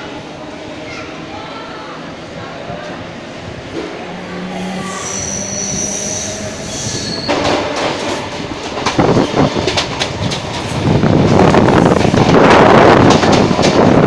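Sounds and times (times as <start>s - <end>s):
train running noise: 0.0s - 14.0s
train wheel squeal: 4.4s - 7.7s.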